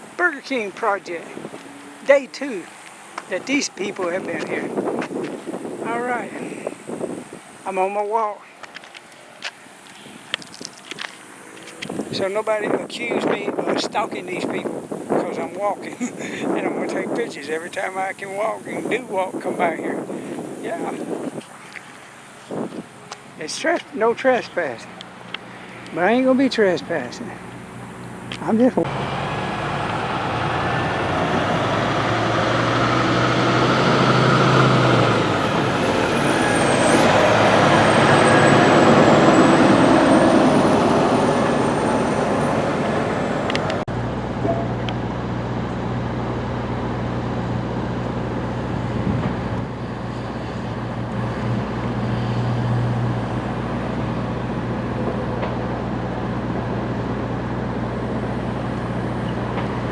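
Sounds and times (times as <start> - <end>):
heavy vehicle passing with whine: 0.0 - 7.7, 9.0 - 13.1, 24.6 - 59.9
traffic rumble: 0.0 - 59.9
low engine hum: 24.6 - 59.9.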